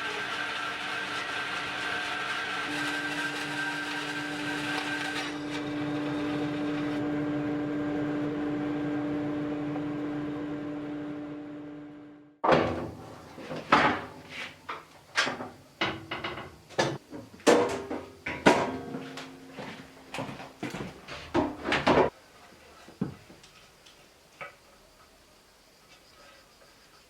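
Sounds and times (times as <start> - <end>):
machine hum: 0.5 - 12.4
hard knocks and clatters: 15.2 - 19.3.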